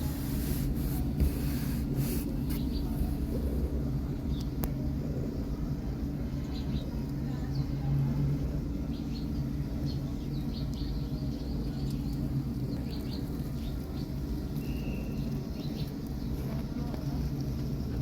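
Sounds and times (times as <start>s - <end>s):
small birds chirping: 0.0s - 3.3s, 8.9s - 16.4s
steady low hum: 0.0s - 18.0s.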